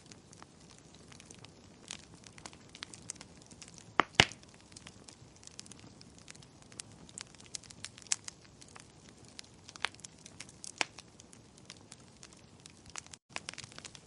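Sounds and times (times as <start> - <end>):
wood fire crackling: 0.0 - 14.0
sharp pops and snaps: 0.4 - 8.4, 11.7 - 14.0.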